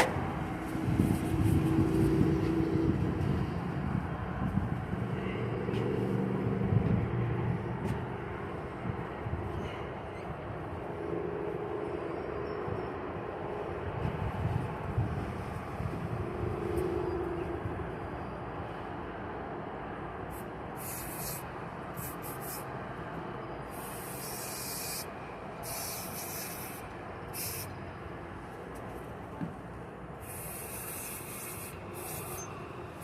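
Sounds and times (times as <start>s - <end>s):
aerosol spray hissing: 20.8s - 21.4s, 22.0s - 22.6s, 23.7s - 27.7s, 30.2s - 32.4s.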